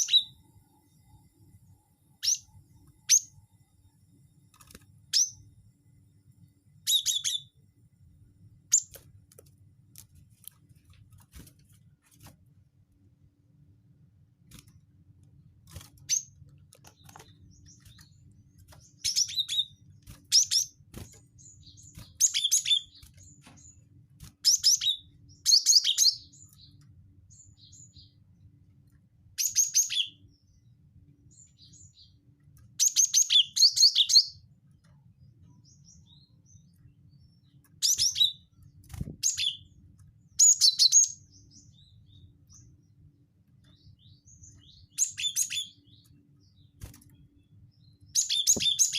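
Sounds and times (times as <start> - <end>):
bird high chirps: 0.0 - 0.4, 2.2 - 3.4, 5.1 - 5.4, 6.8 - 7.6, 8.7 - 9.0, 16.0 - 28.2, 29.4 - 30.6, 31.3 - 34.5, 35.5 - 42.9, 43.6 - 46.8, 47.4 - 48.9.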